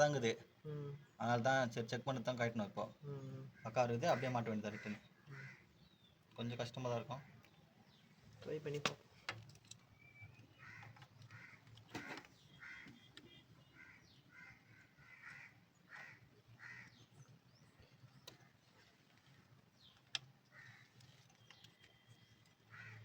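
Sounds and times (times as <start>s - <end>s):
crows cawing: 3.5s - 5.9s, 10.5s - 17.2s, 20.5s - 21.0s, 22.6s - 23.0s.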